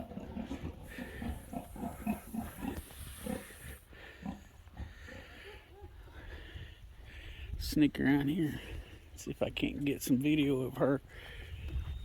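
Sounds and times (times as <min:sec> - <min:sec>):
pig grunting: 0:00.0 - 0:05.5.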